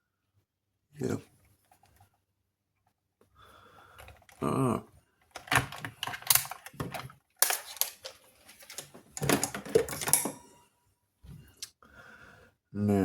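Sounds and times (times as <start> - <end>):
small tools clicking and tapping: 5.3 - 10.5.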